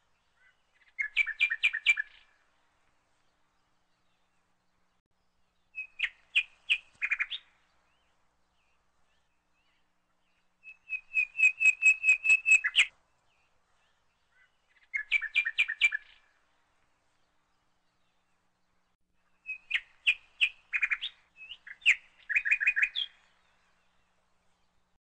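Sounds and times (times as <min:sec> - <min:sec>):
small bird chirping: 0:00.3 - 0:02.4, 0:05.7 - 0:08.1, 0:09.6 - 0:12.9, 0:13.8 - 0:16.3, 0:19.2 - 0:23.7.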